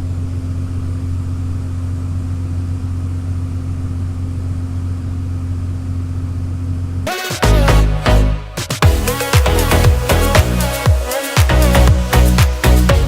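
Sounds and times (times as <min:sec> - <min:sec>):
diesel engine running steadily: 0:00.0 - 0:07.0.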